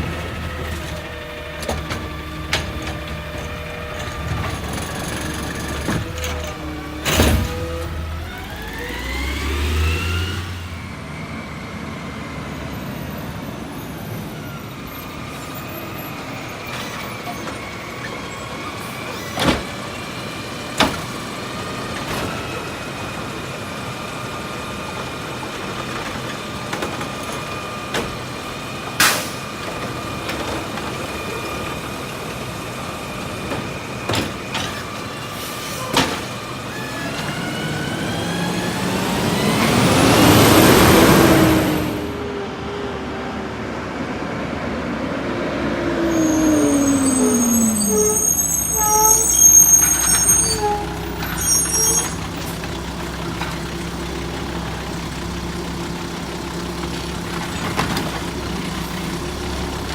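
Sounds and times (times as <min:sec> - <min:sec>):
garbage truck engine whining: 0:00.0 - 0:59.9.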